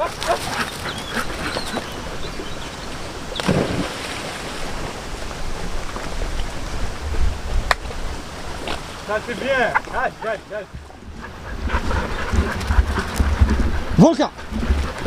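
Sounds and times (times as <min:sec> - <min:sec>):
rushing water: 0:00.0 - 0:15.0
wind noise: 0:00.0 - 0:15.0.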